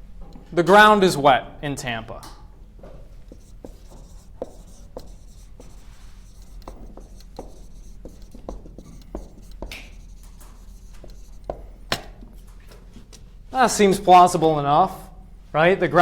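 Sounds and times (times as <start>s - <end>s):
steady low hum: 0.0s - 16.0s
pen tapping and scratching paper: 3.2s - 12.5s.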